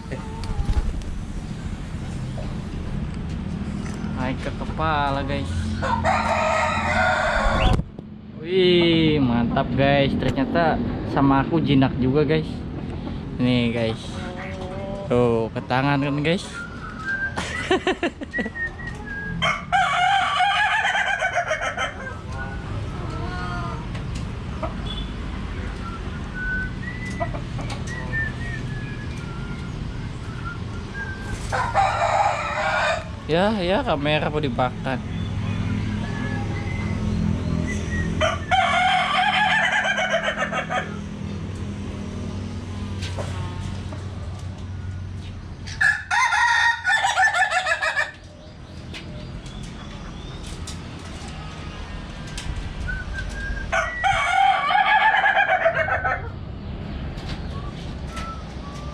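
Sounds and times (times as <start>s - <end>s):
rooster crowing: 5.8s - 7.8s, 19.4s - 22.2s, 31.5s - 33.3s, 38.2s - 41.0s, 45.7s - 48.2s, 53.5s - 56.3s.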